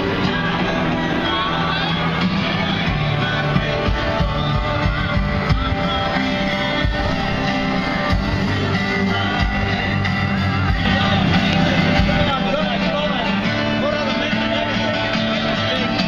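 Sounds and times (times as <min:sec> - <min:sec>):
live band with guitar: 0:00.0 - 0:16.0
person singing: 0:00.0 - 0:16.0.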